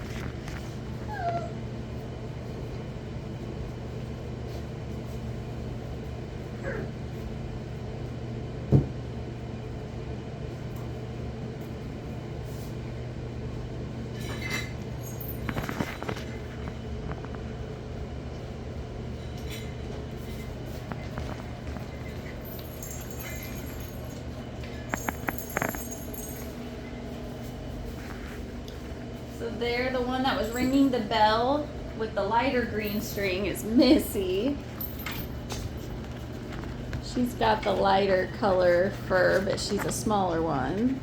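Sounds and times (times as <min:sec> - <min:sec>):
puppies whining and yipping: 0:00.9 - 0:01.6.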